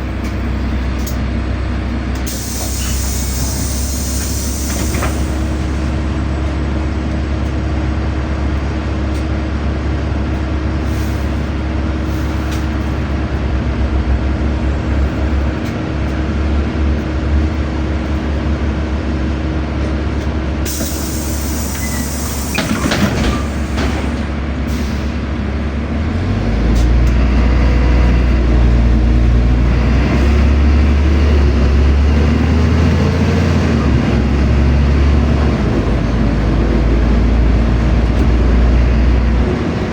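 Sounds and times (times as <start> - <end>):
bus engine droning: 0.0 - 39.9
compressed air hiss: 2.3 - 5.5, 20.7 - 22.8.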